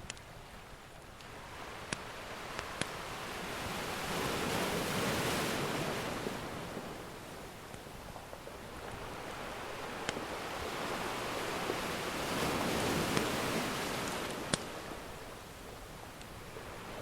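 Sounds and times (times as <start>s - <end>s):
ocean wave breaking: 1.3s - 7.2s, 8.7s - 15.4s.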